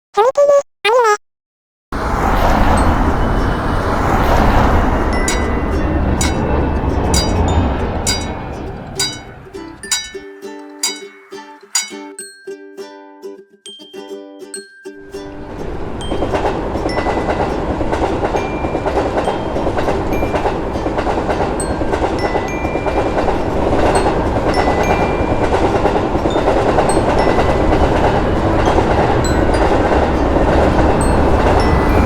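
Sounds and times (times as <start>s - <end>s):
train rumble: 2.0s - 10.2s, 15.2s - 32.0s
wheels clicking over rail joints: 2.0s - 10.2s, 15.3s - 32.0s.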